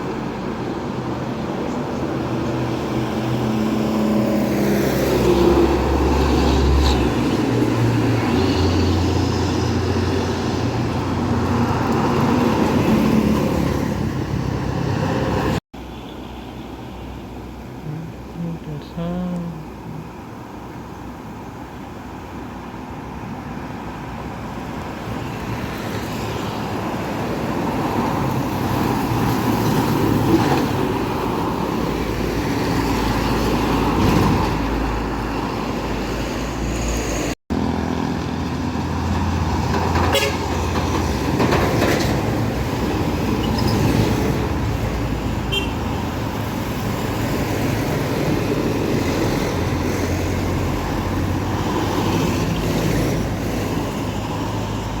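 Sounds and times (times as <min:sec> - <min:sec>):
trucks and buses passing: 0:00.0 - 0:55.0
vehicle horn tooting: 0:40.1 - 0:40.5, 0:45.5 - 0:45.8.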